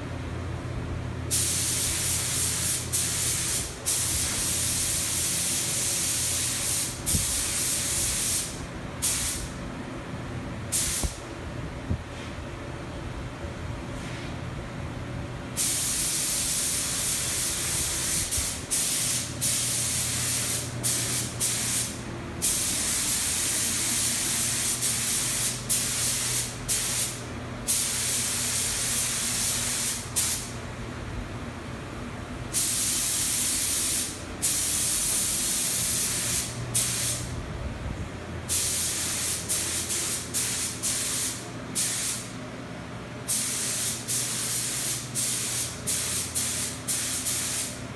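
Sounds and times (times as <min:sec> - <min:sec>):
steady low hum: 0:00.0 - 0:47.9
spray paint hissing: 0:01.3 - 0:09.5, 0:10.7 - 0:11.2, 0:15.6 - 0:30.5, 0:32.6 - 0:37.2, 0:38.5 - 0:42.2, 0:43.3 - 0:47.8.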